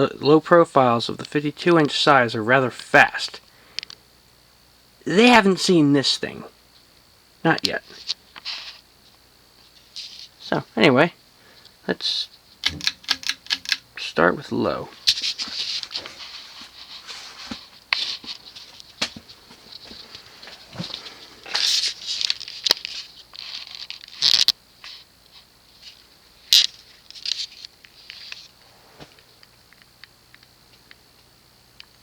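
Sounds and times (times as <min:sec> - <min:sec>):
ceiling fan humming: 0:00.0 - 0:23.7
ceiling fan clicks and rattles: 0:11.6 - 0:16.3, 0:25.9 - 0:32.0.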